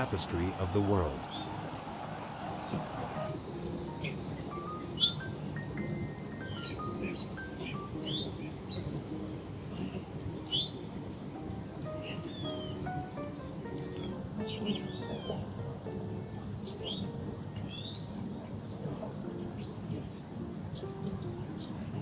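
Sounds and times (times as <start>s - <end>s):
bird chirps: 0.0s - 22.0s
cricket trill: 0.0s - 22.0s
soft music of single notes: 0.0s - 22.0s.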